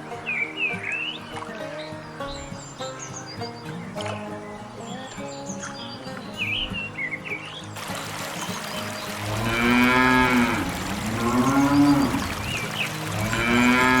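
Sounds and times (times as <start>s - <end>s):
cattle mooing: 9.2s - 14.0s.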